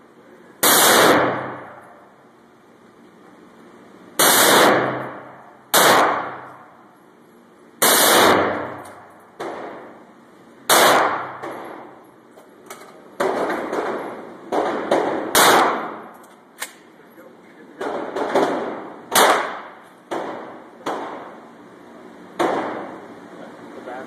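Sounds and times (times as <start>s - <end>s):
rifle firing full-auto bursts: 4.2s - 5.1s, 5.7s - 6.5s, 7.8s - 8.8s, 10.7s - 11.4s.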